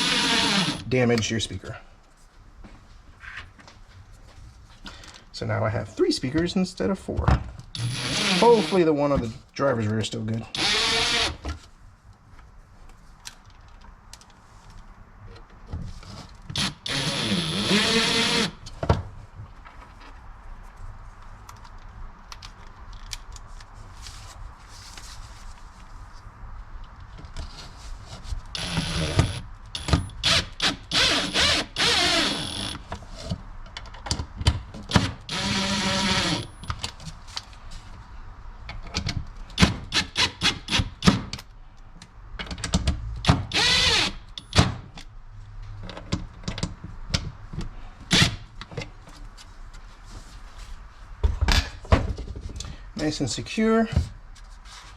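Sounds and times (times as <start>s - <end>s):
cordless drill whirring: 0.0s - 0.8s, 7.8s - 8.8s, 10.6s - 11.4s, 16.6s - 18.6s, 28.6s - 32.8s, 35.3s - 36.5s, 43.5s - 44.2s.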